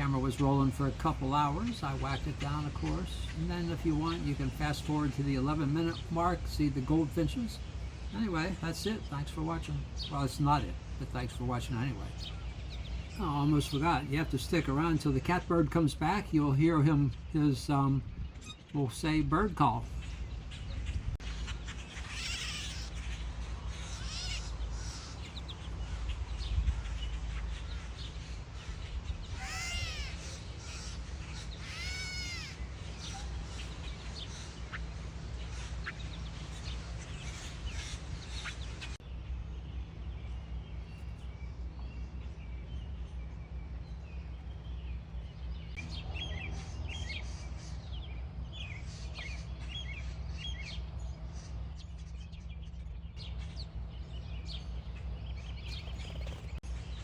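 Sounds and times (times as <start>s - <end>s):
other birds chirping: 0.0s - 57.0s
steady low hum: 0.0s - 57.0s
catbird mewing call: 21.4s - 27.0s, 28.6s - 39.0s.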